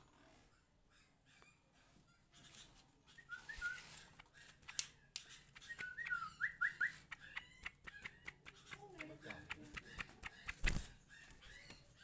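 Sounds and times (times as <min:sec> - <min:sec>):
songbird whistled chirps: 0:03.1 - 0:08.5
sharp clicks: 0:04.2 - 0:06.2, 0:06.9 - 0:10.9.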